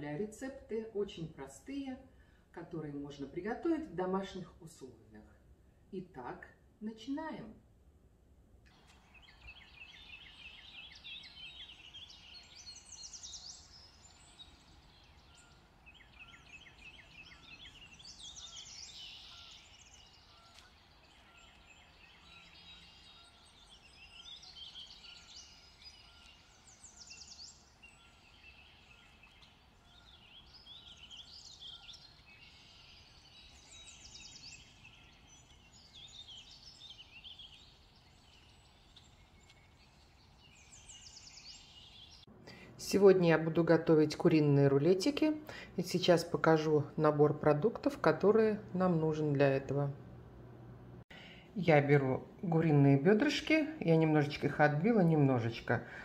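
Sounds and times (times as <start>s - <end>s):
small birds chirping and trilling: 8.7s - 43.5s.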